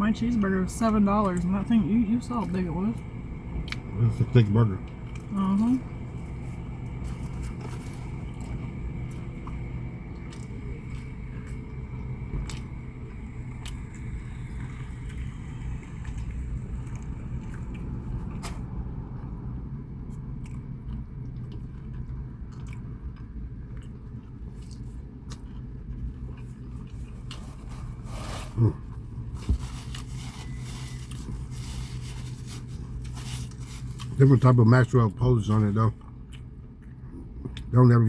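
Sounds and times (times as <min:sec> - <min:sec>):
steady low hum: 0:00.0 - 0:38.0
person chewing food: 0:06.2 - 0:18.5, 0:20.1 - 0:34.2, 0:35.9 - 0:37.7.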